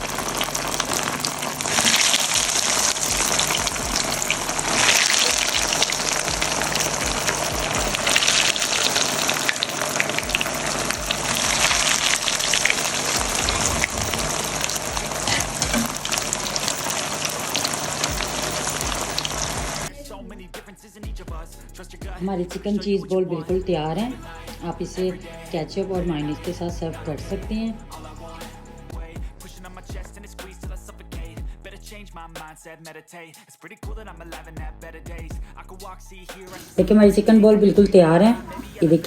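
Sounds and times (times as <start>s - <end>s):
food deep-frying in hot oil: 0.0s - 19.9s.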